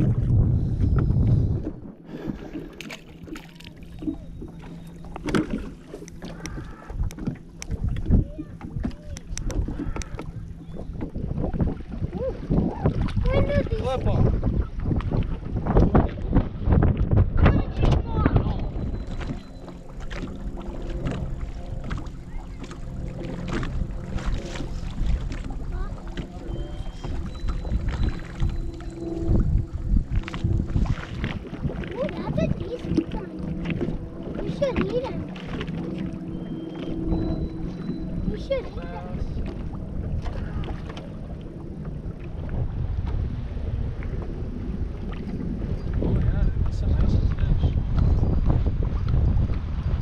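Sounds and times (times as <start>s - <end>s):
steady low hum: 0.0s - 50.0s
wind buffeting microphone: 0.0s - 50.0s
handling knocks and clicks in boat: 0.8s - 12.1s, 14.6s - 38.8s, 39.4s - 43.4s.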